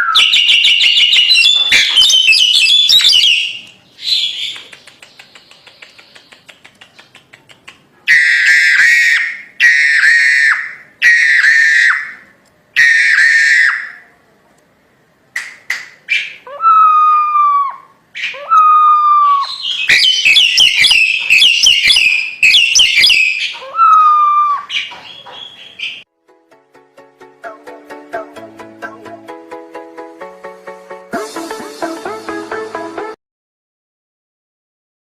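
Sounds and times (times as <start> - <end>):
bird down-slurred whistles: 0.0 - 4.6, 19.2 - 23.5
bird harsh rasping calls: 0.0 - 12.2, 16.1 - 26.0
bird fast chattering: 0.2 - 8.0, 19.5 - 23.6
bird clicks: 4.4 - 7.9.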